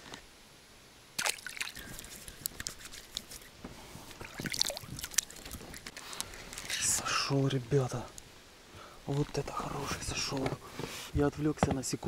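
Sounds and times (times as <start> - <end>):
water dripping and splashing: 1.2 - 3.5, 4.1 - 6.8.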